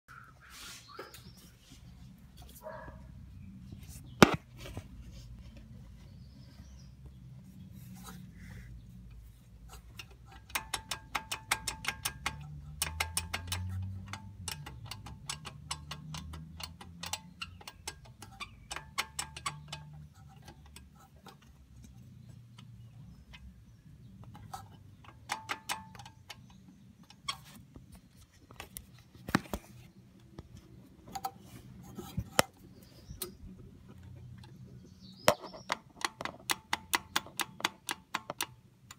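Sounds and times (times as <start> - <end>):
metallic rattling clicks: 9.1 - 29.6, 30.2 - 38.9.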